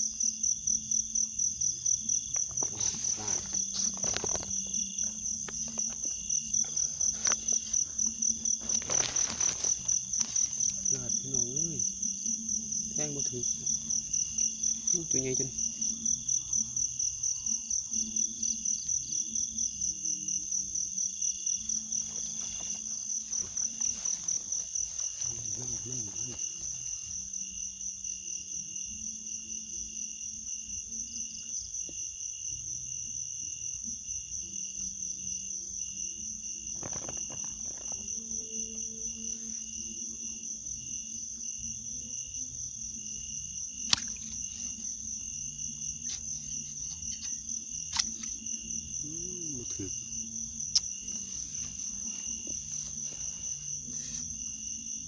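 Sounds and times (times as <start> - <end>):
insects chirping: 0.0 - 55.0
rustling: 2.5 - 11.2, 21.6 - 27.3, 50.0 - 55.0.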